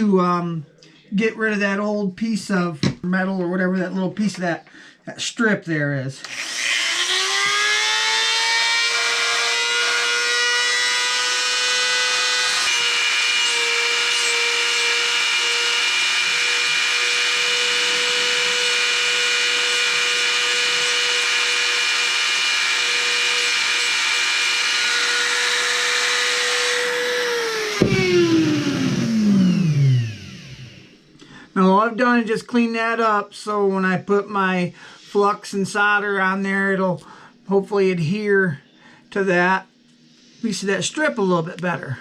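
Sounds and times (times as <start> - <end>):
rotary tool whining: 6.2 - 31.1.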